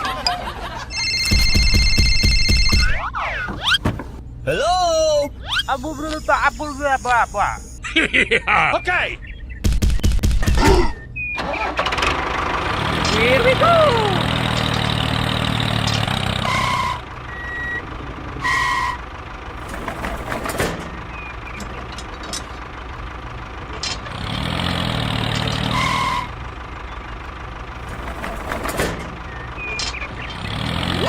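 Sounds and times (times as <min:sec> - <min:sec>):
vehicle engine running: 0:00.0 - 0:03.1, 0:11.0 - 0:31.0
short electronic beeps: 0:00.9 - 0:03.8, 0:05.4 - 0:07.8.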